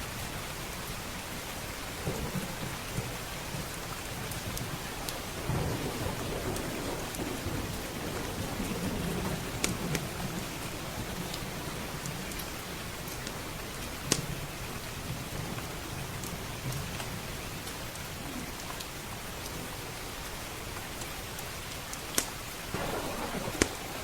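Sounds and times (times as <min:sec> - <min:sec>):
steady rain: 0:00.0 - 0:24.0
low rumble of thunder: 0:02.0 - 0:17.4, 0:22.7 - 0:24.0
wood fire crackling: 0:02.3 - 0:24.0.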